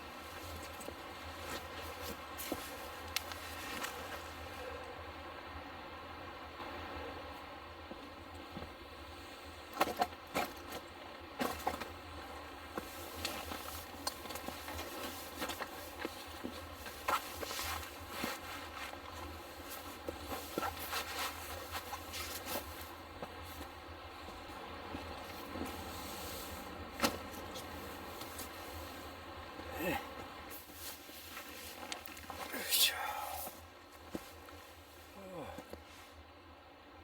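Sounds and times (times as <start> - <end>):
rustling and scraping: 0.2 - 4.6, 12.8 - 23.8, 30.5 - 32.5
camp gear clicks and knocks: 9.8 - 12.0, 27.0 - 28.6.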